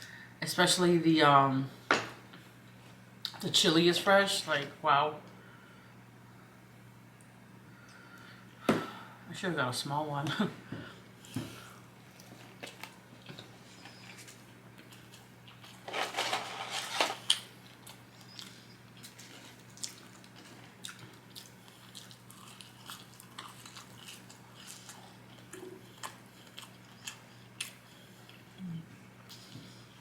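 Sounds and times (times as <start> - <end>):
soft chewing and mouth clicks: 11.2 - 15.8, 17.3 - 30.0
person eating fast food: 11.2 - 30.0.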